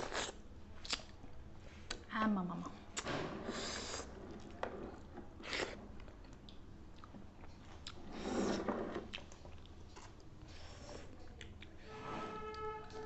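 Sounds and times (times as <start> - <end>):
person chewing food: 5.4 - 8.2.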